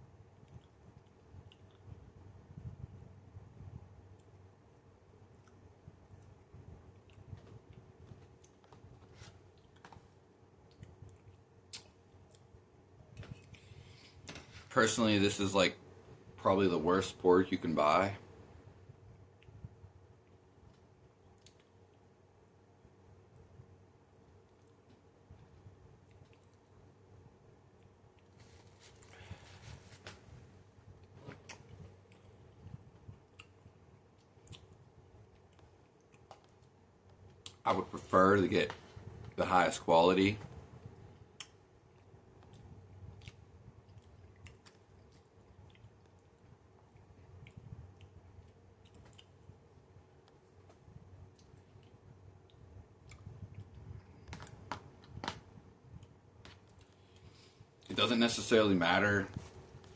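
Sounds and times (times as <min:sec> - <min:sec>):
low room hum: 0:00.0 - 0:59.9
person chewing food: 0:00.3 - 0:01.9, 0:06.9 - 0:12.5, 0:31.0 - 0:37.6, 0:41.2 - 0:57.8.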